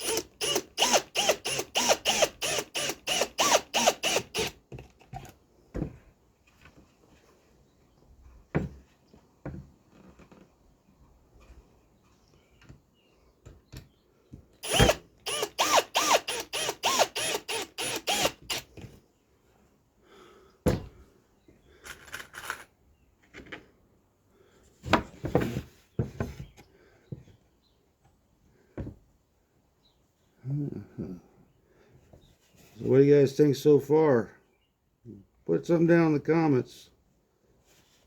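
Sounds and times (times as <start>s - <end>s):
power tool driving fasteners: 0.0s - 5.3s, 14.6s - 18.8s.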